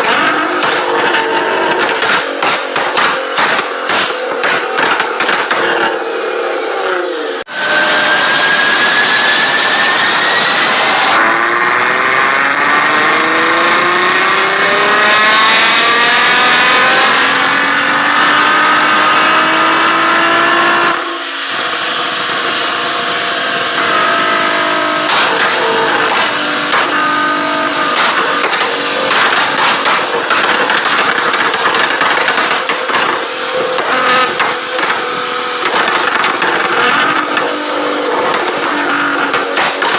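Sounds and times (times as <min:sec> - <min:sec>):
exhaust pops and crackles: 0:00.0 - 0:06.0, 0:25.1 - 0:27.2, 0:27.8 - 0:39.9
car engine accelerating hard: 0:00.0 - 0:39.9.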